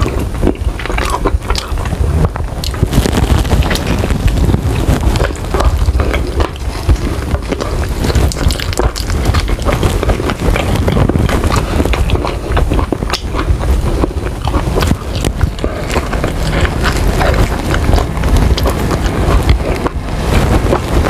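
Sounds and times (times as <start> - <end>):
chewing and biting: 0.0 - 21.0
lip smacking clicks: 5.2 - 20.0.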